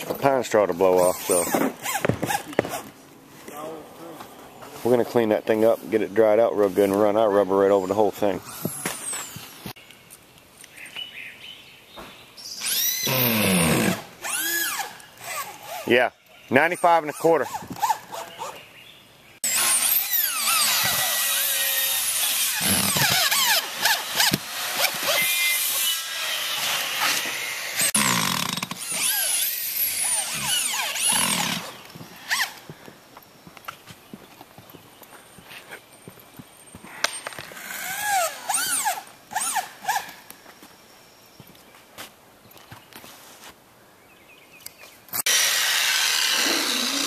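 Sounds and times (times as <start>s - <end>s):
power tool running: 19.4s - 31.7s, 45.2s - 47.0s.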